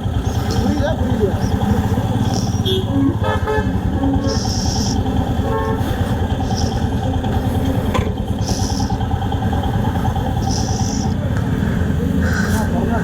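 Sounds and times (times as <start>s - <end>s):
motorcycle engine running: 0.0s - 13.0s
vehicle horn toots: 2.6s - 4.5s, 5.4s - 6.2s.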